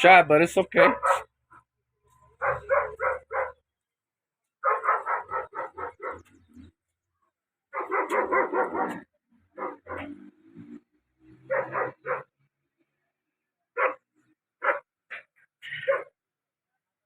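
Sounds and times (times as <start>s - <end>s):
dog barking: 0.8s - 1.6s, 2.4s - 3.6s, 4.6s - 6.4s, 7.7s - 10.2s, 11.4s - 12.4s, 13.7s - 16.2s.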